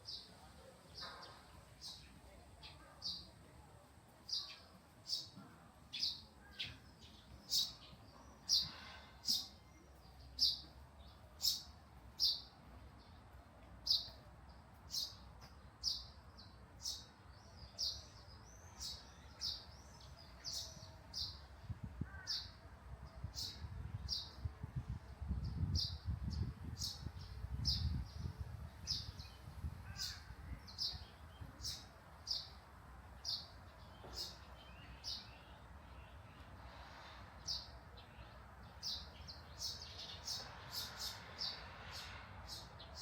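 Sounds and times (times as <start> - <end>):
small bird chirping: 11.4 - 12.5.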